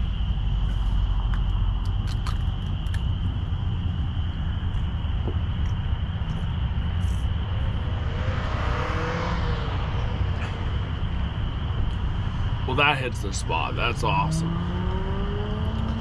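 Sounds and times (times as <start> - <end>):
insect drone: 0.0 - 16.0
low traffic rumble: 0.0 - 16.0
car passing by: 7.7 - 11.4.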